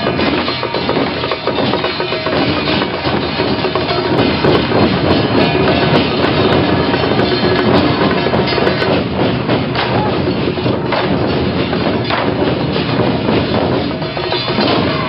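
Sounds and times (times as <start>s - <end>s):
drum and gong strikes: 0.0s - 15.0s
festival din: 0.0s - 15.0s.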